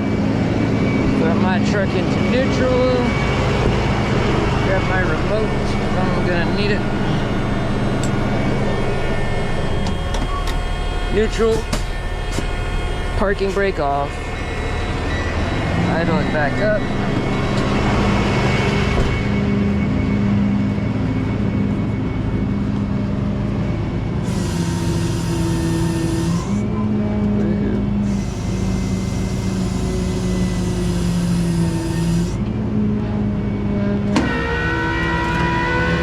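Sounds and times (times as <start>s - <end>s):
truck engine droning: 0.0s - 36.0s.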